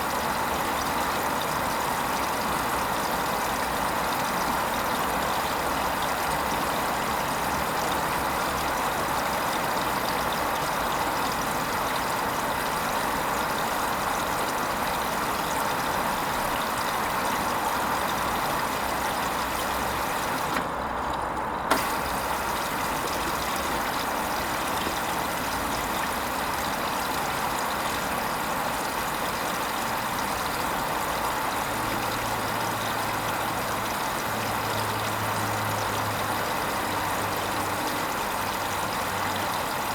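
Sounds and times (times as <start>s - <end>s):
washing machine hiss: 8.8s - 20.8s, 21.6s - 39.9s.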